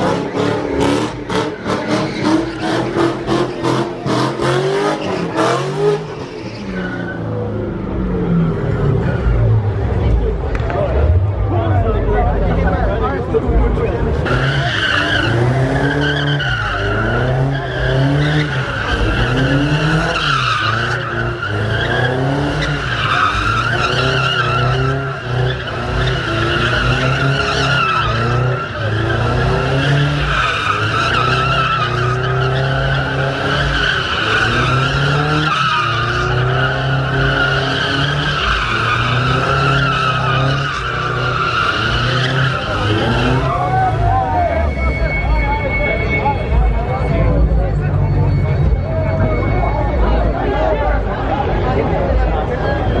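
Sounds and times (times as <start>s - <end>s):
car engine revving: 0.0s - 12.7s, 13.4s - 50.4s
tyres squealing: 14.3s - 50.0s.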